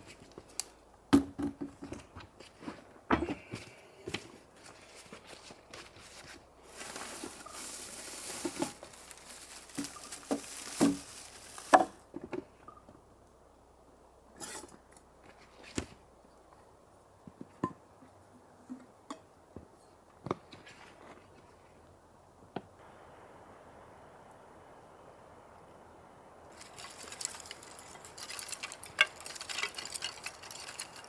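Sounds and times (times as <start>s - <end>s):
knocks and clinks of handling: 6.7s - 12.0s, 26.5s - 31.0s.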